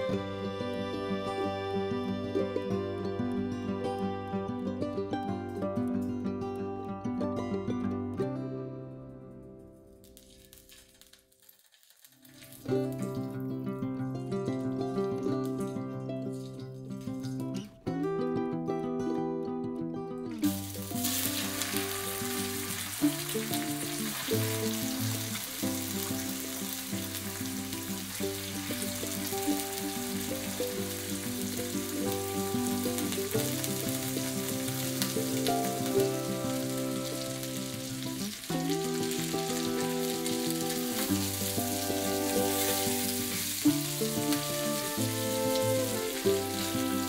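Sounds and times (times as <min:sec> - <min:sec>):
background music with melody: 0:00.0 - 0:10.1, 0:12.7 - 0:47.0
chicken sizzling in hot oil: 0:10.0 - 0:13.3, 0:20.4 - 0:47.0.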